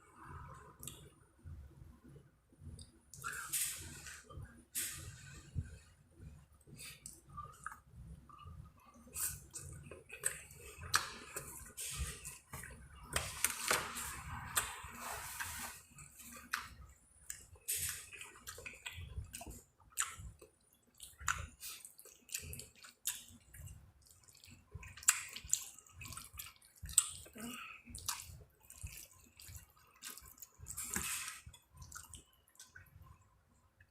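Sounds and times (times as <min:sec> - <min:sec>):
wet chewing and mouth smacks: 0:06.9 - 0:08.5, 0:09.1 - 0:13.5, 0:16.2 - 0:33.2.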